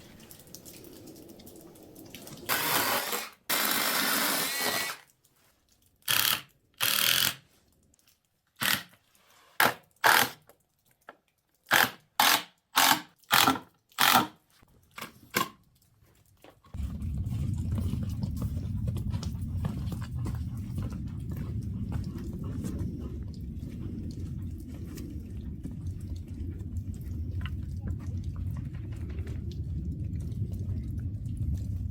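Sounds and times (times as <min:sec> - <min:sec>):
power drill bursts: 0:02.5 - 0:05.0.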